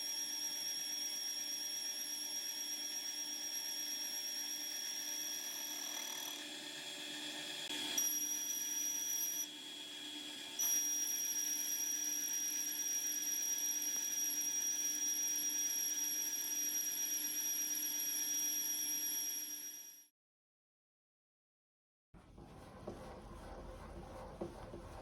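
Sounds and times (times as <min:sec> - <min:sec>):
electric motor high-pitched whine: 0:00.0 - 0:20.0.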